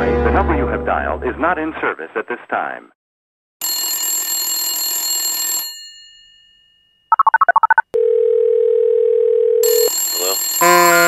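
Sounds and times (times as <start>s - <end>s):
touch-tone dialing beeps: 7.1s - 9.6s
telephone line tone: 7.1s - 11.0s.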